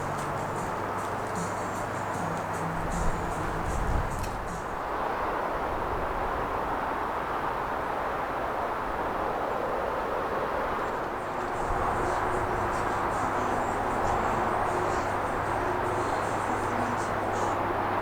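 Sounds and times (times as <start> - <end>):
vehicle engine rumbling: 0.0 - 5.0, 11.0 - 17.9.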